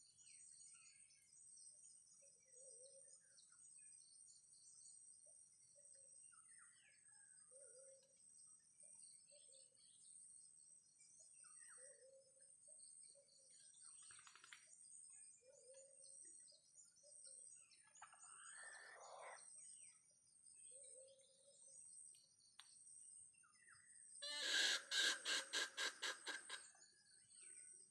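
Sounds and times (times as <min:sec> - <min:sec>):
faint bird calls: 0:15.4 - 0:19.7, 0:24.2 - 0:27.9.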